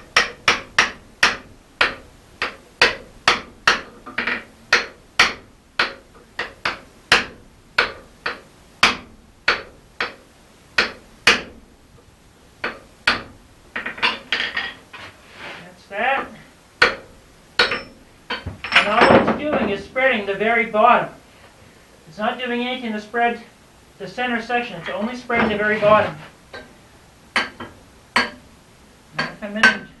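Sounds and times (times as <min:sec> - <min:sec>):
hammer striking metal: 0:16.8 - 0:19.8, 0:27.4 - 0:28.4.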